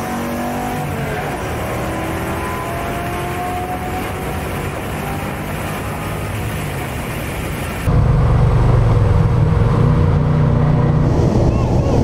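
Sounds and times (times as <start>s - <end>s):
car engines droning at speed: 0.0s - 12.0s
engine drone inside car cabin: 7.8s - 12.0s.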